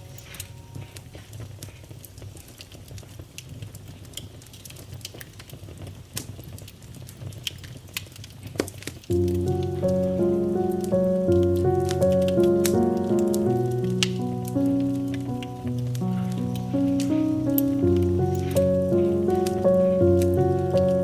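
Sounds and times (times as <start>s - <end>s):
piano chords: 0.0s - 1.5s, 9.1s - 21.0s
wood fire crackling: 0.0s - 21.0s.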